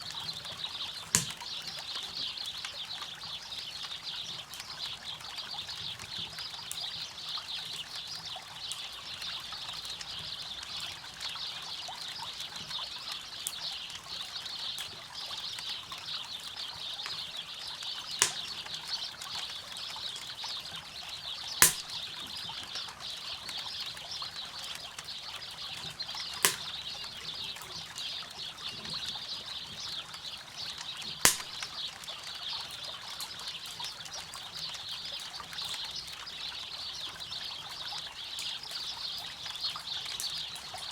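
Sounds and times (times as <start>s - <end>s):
campfire crackling: 0.9s - 1.6s, 17.8s - 20.5s, 21.5s - 24.0s, 24.6s - 27.8s, 30.8s - 31.9s
loud pops from fire: 1.2s - 1.5s, 18.2s - 18.7s, 21.6s - 22.1s, 25.8s - 26.9s, 31.3s - 31.8s.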